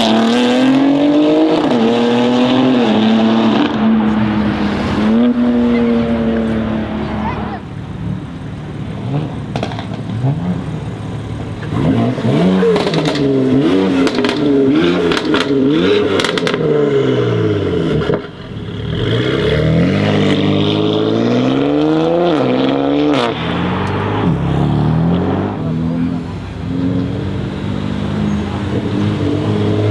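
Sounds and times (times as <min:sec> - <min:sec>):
car engine revving: 0:00.0 - 0:29.9
exhaust cracks: 0:03.6 - 0:07.6, 0:09.3 - 0:20.7, 0:22.3 - 0:26.4.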